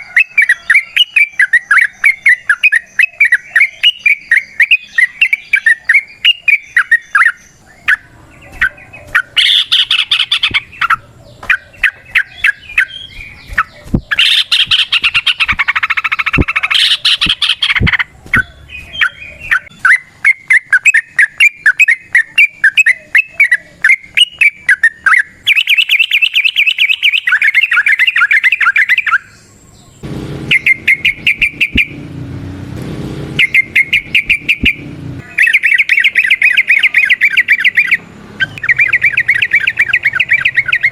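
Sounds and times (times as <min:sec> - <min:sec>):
bulbul chattering song: 0:00.0 - 0:32.6, 0:33.2 - 0:40.9
low rumbling noise: 0:30.0 - 0:35.4.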